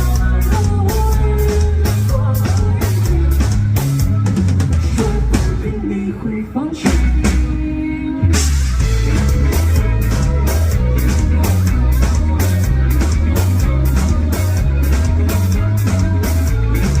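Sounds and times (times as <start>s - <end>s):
drum kit beat: 0.0s - 6.1s, 6.8s - 17.0s
guitar: 0.0s - 17.0s
heavy bass: 0.0s - 17.0s.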